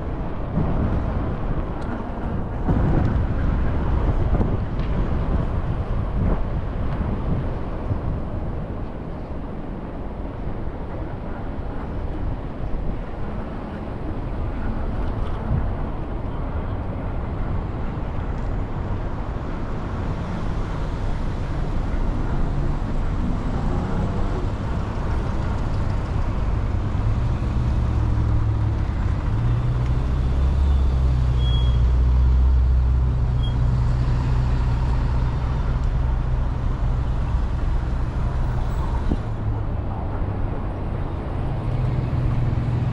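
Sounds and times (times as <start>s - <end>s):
passing traffic and wind: 0.0s - 42.9s.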